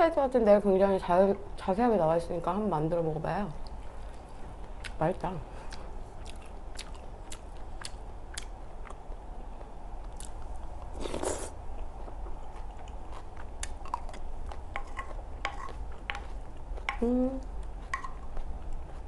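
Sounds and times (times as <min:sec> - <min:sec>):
mouth chewing sounds: 0:05.6 - 0:19.0.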